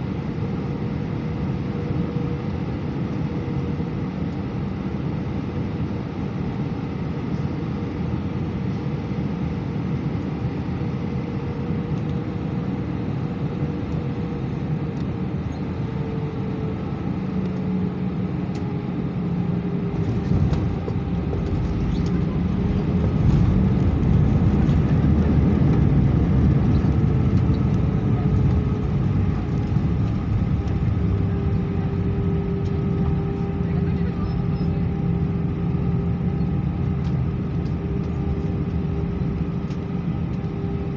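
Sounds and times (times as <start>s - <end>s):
jet engines and airflow rushing: 0.0s - 40.9s.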